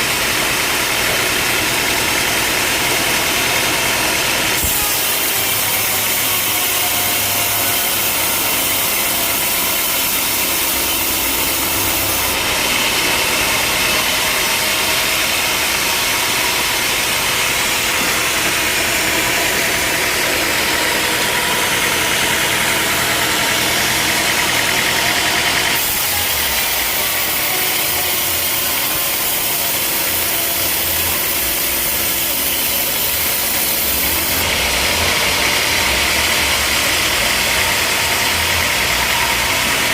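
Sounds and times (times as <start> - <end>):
saw cutting through log: 0.0 - 39.9
sawmill running: 0.0 - 39.9.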